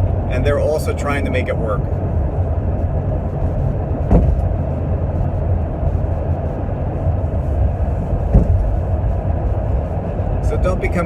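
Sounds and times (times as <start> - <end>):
moving vehicle rumble: 0.0 - 11.0
short thump: 4.0 - 4.6, 8.2 - 8.8.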